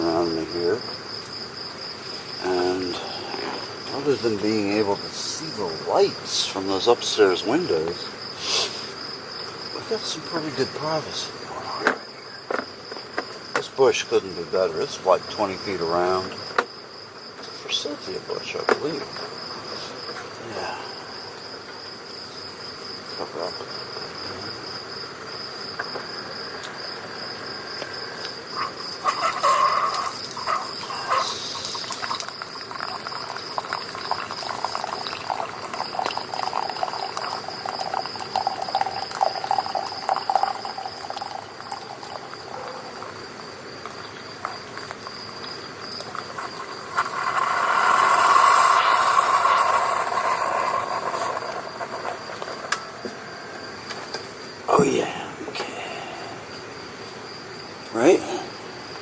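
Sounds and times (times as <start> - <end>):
crickets trilling: 0.0 - 59.0
rushing noise: 46.8 - 53.5.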